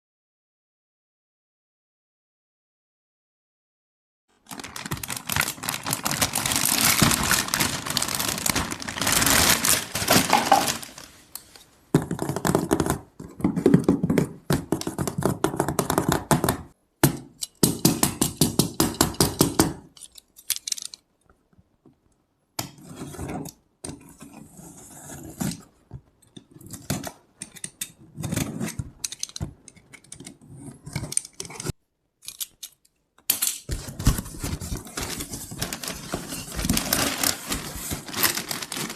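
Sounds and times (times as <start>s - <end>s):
packaging crinkling: 4.4s - 11.3s, 33.7s - 38.9s
plastic toy pieces clicking: 19.8s - 21.0s, 31.0s - 33.7s.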